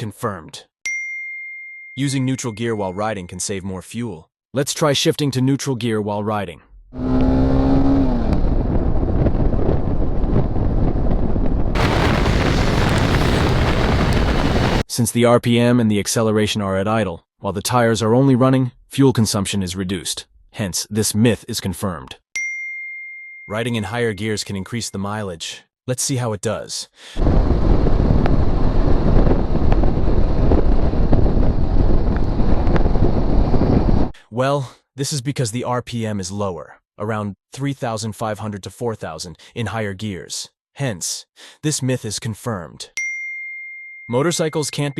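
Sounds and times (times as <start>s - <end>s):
wind and road noise: 6.7s - 14.8s, 27.2s - 34.2s
road noise: 6.9s - 10.8s, 11.8s - 14.8s
wind rush on microphone: 7.0s - 14.8s, 27.2s - 34.2s.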